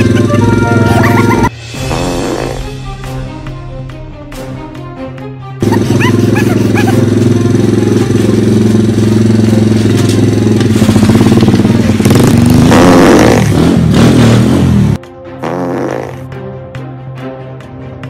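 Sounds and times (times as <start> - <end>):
motorcycle engine revving: 0.0 - 2.8, 5.6 - 16.4.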